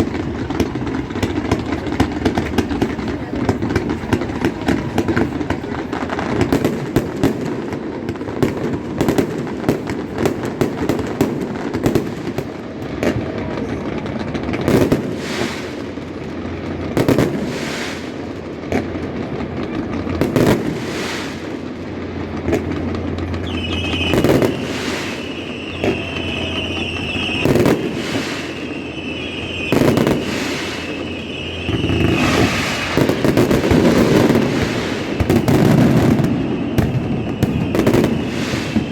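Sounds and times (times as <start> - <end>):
fireworks booming with echo: 0.0 - 38.9
fireworks crackling and popping: 0.0 - 38.9
high wavering whistle: 23.4 - 33.2, 36.1 - 38.9.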